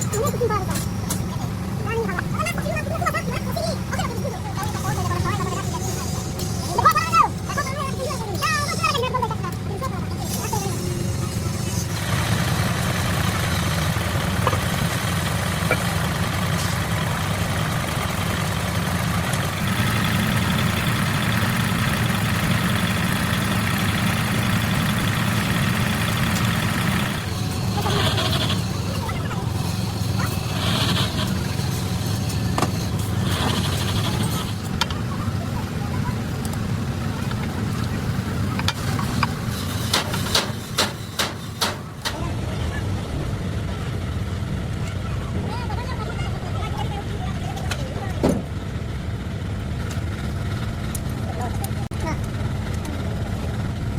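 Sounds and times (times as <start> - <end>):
heavy engine droning: 0.0 - 53.9
sharp clicks and knocks: 38.6 - 42.2.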